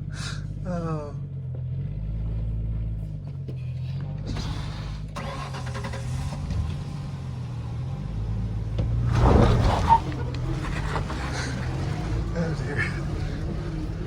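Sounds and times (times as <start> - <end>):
pickup engine at low revs: 0.0 - 14.0.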